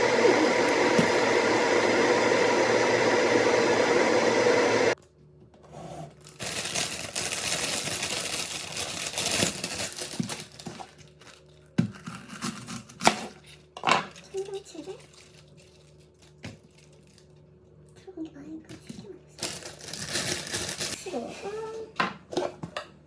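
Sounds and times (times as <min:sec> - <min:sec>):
machine whirring: 0:00.0 - 0:05.0
crinkling and rustling: 0:06.2 - 0:17.5.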